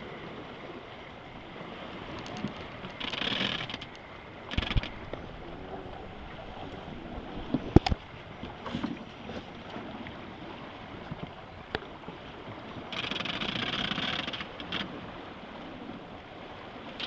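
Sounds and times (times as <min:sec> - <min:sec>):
water rushing along boat hull: 0:00.0 - 0:17.0
wind on microphone: 0:04.4 - 0:11.4.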